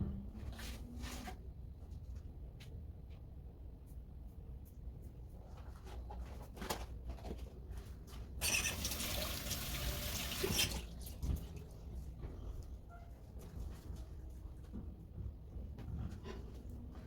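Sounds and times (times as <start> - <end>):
water gushing: 8.4 - 11.0.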